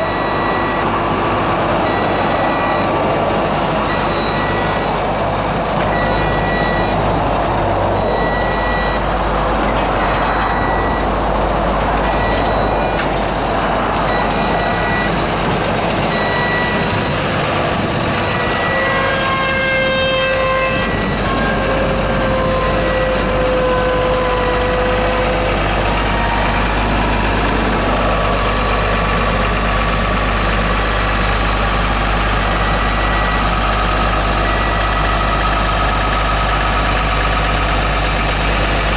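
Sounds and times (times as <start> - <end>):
falling whine: 0.0 - 30.4
backup alarm beeping: 0.0 - 31.2
diesel engine humming: 0.0 - 38.9.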